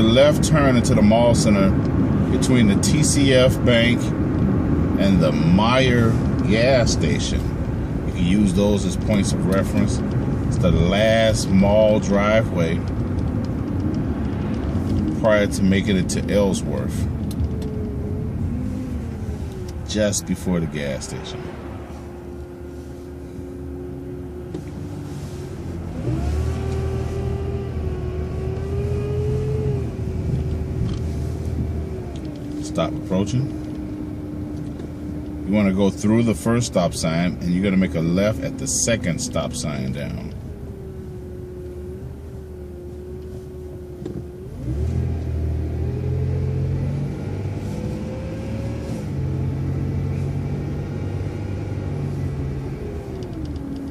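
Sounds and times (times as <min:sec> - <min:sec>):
bus engine whining and rumbling: 0:00.0 - 0:53.9.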